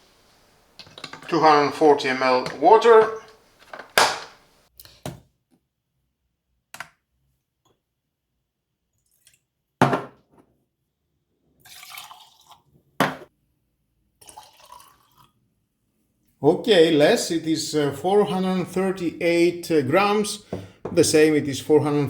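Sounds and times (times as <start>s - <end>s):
containers knocking: 0.8s - 4.4s
liquid pouring and splashing: 11.6s - 12.7s, 14.2s - 15.4s.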